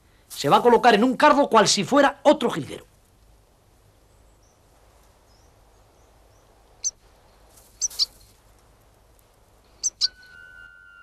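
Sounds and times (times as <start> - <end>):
faint outdoor hiss: 0.0 - 11.0
short high bird chirps: 7.8 - 8.1, 9.8 - 10.7.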